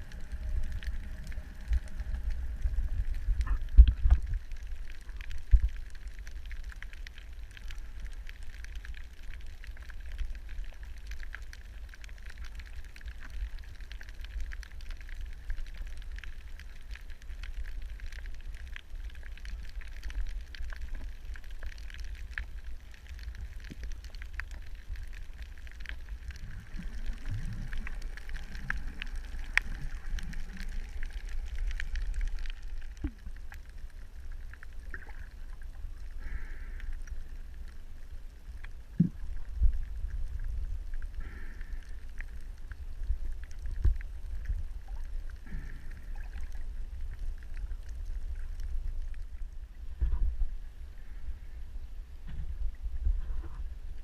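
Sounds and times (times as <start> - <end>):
dense crackle of tiny clicks: 0.0 - 54.0
low underwater rumble: 0.0 - 54.0.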